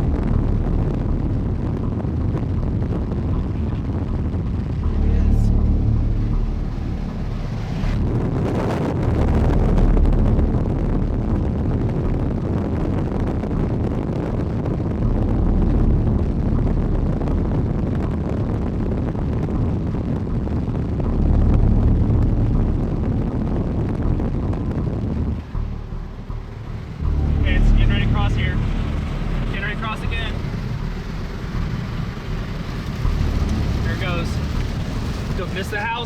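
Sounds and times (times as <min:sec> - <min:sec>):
wind blowing over microphone: 0:00.0 - 0:36.0.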